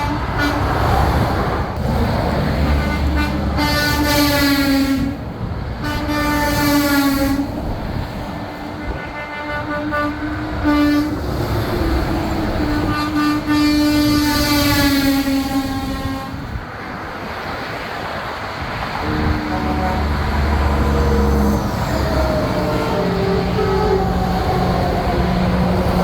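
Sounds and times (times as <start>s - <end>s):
truck air horn blasts: 0.0s - 1.0s, 2.6s - 5.2s, 5.8s - 7.7s, 8.8s - 11.4s, 12.3s - 16.6s, 19.0s - 26.0s
passing trucks rumbling: 0.0s - 26.0s.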